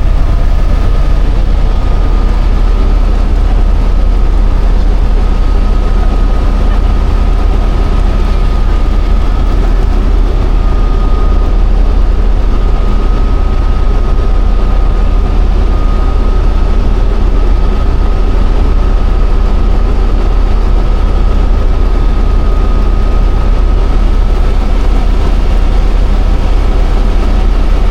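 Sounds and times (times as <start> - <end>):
helicopter rotor and engine rumble: 0.0 - 27.9
high whine: 0.0 - 27.9.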